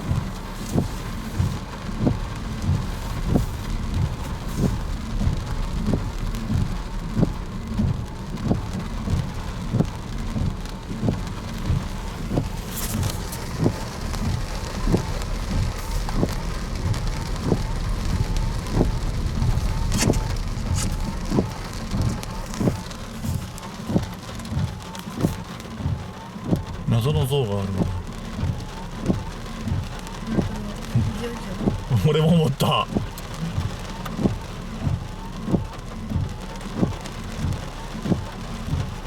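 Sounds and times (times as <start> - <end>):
steady low rumble: 0.0 - 39.0
footsteps walking: 11.1 - 16.4.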